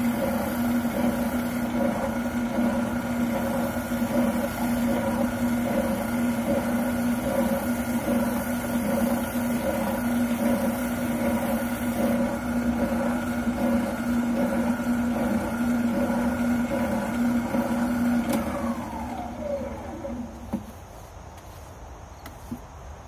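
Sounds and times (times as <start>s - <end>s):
sanding rasp: 0.0s - 17.7s
oscillating sander running: 0.0s - 20.6s
sander motor spinning down: 0.0s - 20.7s.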